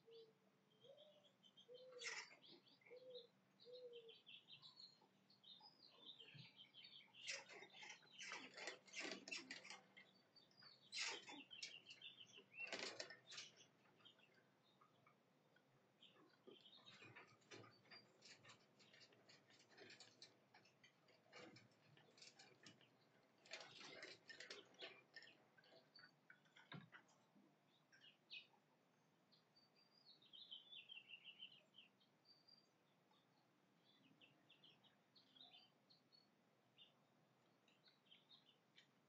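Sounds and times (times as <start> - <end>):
bird chirps: 0.0 - 15.2, 16.0 - 20.0, 29.3 - 37.0, 37.6 - 38.9
faint clicking and scratching: 5.4 - 28.4.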